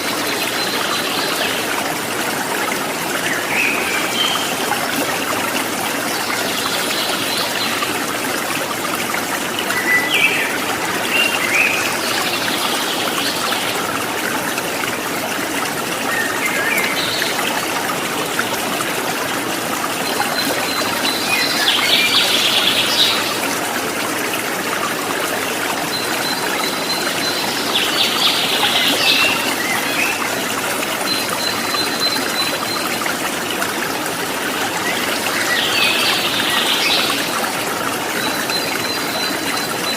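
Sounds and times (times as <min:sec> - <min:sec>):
stream babbling: 0:00.0 - 0:39.9
songbirds calling: 0:34.4 - 0:39.9.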